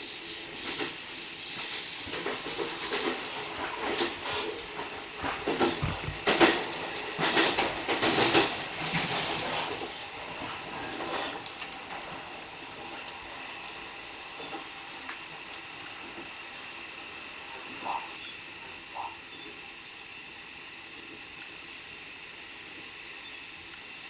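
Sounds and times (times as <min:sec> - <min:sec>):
train wheel clatter: 0:00.0 - 0:16.4
train running noise: 0:00.0 - 0:20.8.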